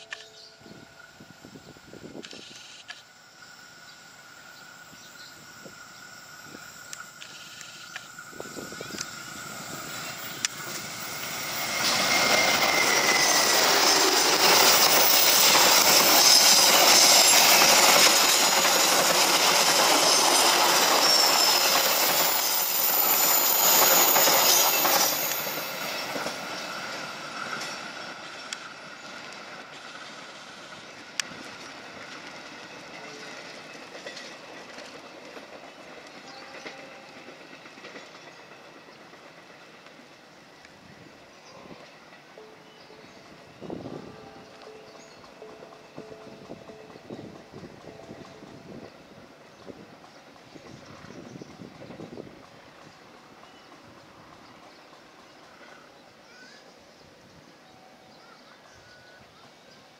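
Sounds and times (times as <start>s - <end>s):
train wheels squealing: 0.0s - 59.9s
wheels clacking over rail joints: 6.9s - 30.1s, 31.1s - 40.1s.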